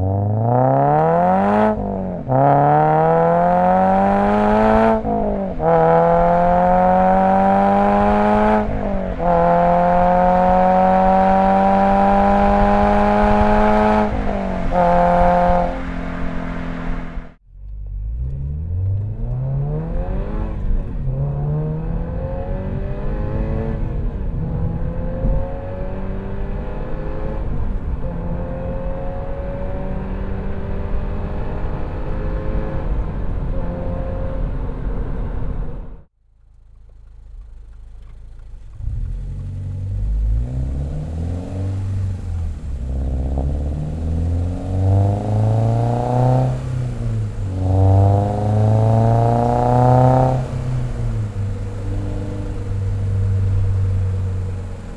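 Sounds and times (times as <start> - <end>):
car engine accelerating through gears: 0.0 - 54.9.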